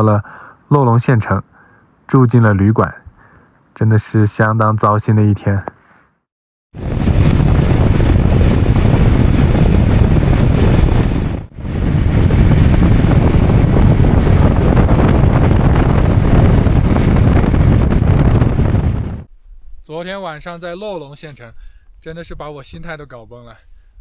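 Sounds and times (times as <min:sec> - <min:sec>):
wind buffeting microphone: 0:06.8 - 0:19.3.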